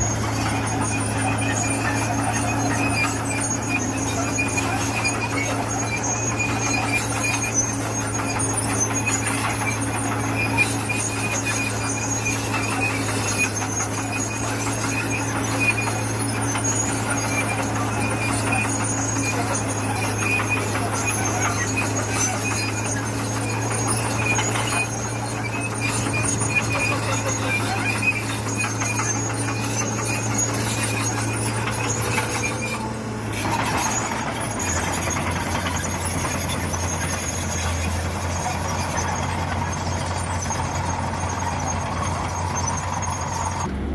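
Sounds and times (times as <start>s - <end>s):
high-pitched squeals: 0.0s - 43.9s
low engine drone: 42.5s - 43.9s.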